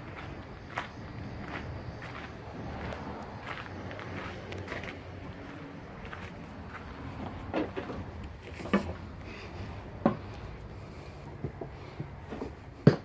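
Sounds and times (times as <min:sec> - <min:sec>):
knocks and thumps of movement: 0:06.8 - 0:09.2, 0:09.8 - 0:10.5.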